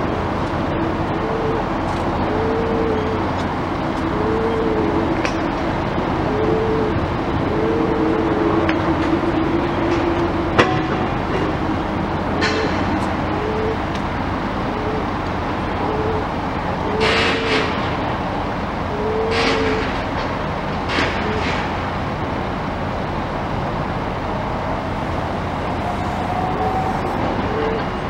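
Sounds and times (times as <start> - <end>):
demolition machinery running: 0.0 - 28.0
short machine whine: 24.8 - 28.0.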